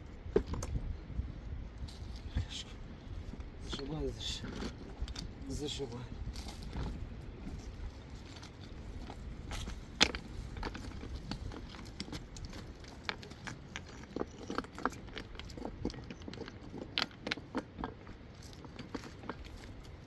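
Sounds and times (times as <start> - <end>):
small clicks and knocks: 9.1 - 19.9.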